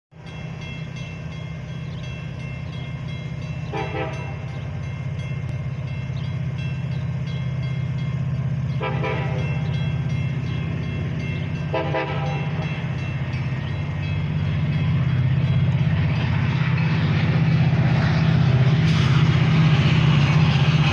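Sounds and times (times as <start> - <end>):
railroad crossing bell ringing: 0.1 - 18.8
approaching train rumble: 0.1 - 20.9
train horn blasts: 3.6 - 4.5, 8.7 - 9.7, 11.6 - 12.9.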